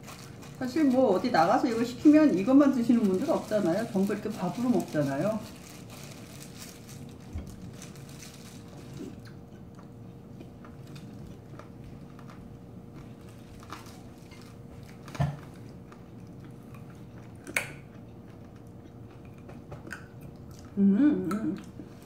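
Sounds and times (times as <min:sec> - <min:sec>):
small crunches: 0:02.8 - 0:17.7
person chewing food: 0:05.8 - 0:22.0.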